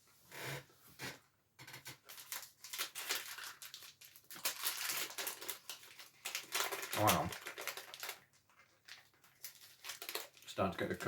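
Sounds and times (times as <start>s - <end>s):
snack packaging crinkling: 1.9s - 11.0s.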